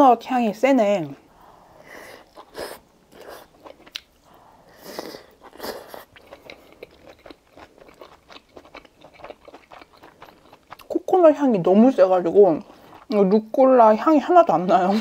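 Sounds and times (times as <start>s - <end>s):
person chewing crunchy vegetables: 1.1s - 11.2s, 12.2s - 13.2s.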